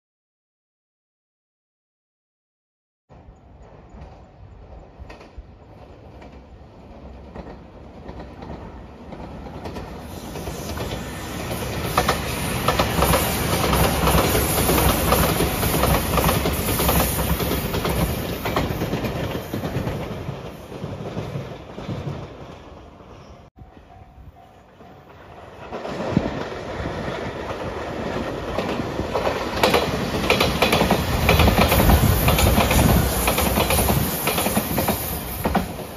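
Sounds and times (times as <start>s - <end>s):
electric train passing: 3.1s - 35.9s
wheels clicking over rail joints: 25.1s - 35.9s.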